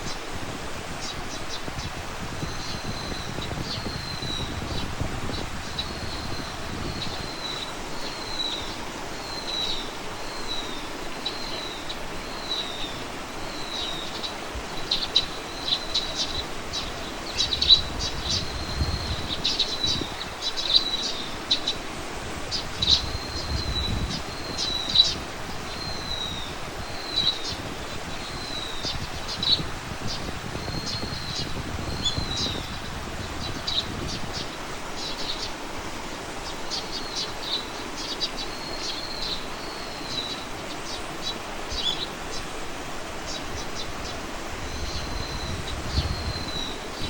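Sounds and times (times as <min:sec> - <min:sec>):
steady outdoor hiss: 0:00.0 - 0:47.0
small bird calling: 0:01.0 - 0:47.0.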